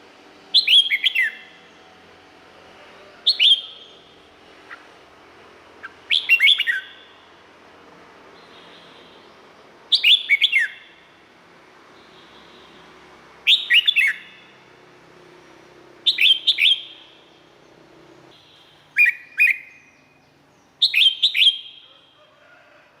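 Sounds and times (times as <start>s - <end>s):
bird singing whistled notes: 0.5s - 1.8s, 3.3s - 4.1s, 5.8s - 7.4s, 8.4s - 11.1s, 13.4s - 14.6s, 16.0s - 17.5s, 18.3s - 22.2s.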